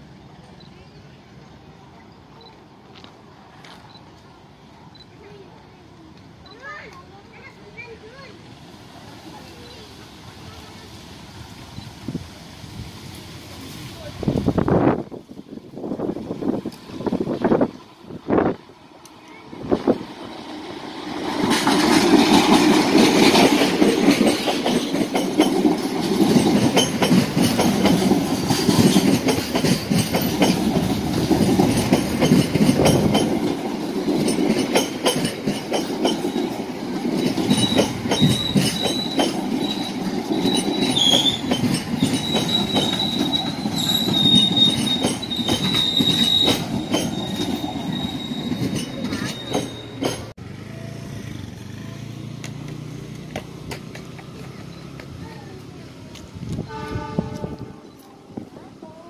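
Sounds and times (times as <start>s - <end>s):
diesel train passing: 0.0s - 59.0s
wheels clacking on rail joints: 19.2s - 50.4s, 52.3s - 58.2s
high wheel squeal: 37.2s - 50.3s.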